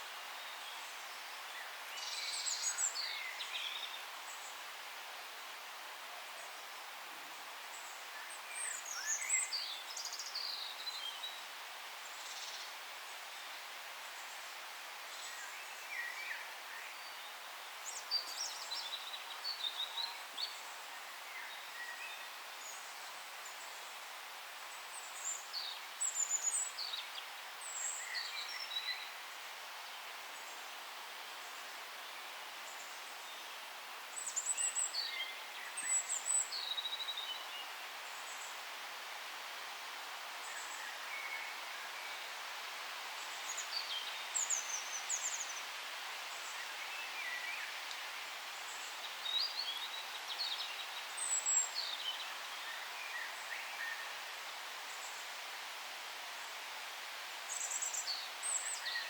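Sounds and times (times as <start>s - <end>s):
forest hiss: 0.0s - 59.0s
songbirds singing: 15.0s - 55.5s, 56.3s - 59.0s.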